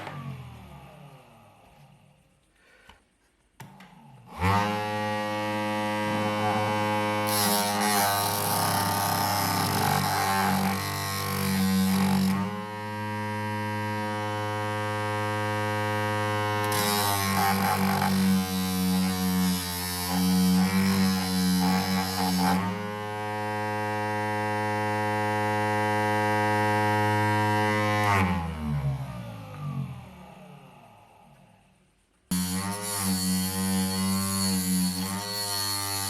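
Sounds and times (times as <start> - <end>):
sanding pad grinding: 4.3 - 12.5, 32.3 - 36.0
sanding machine motor whine: 4.3 - 28.3.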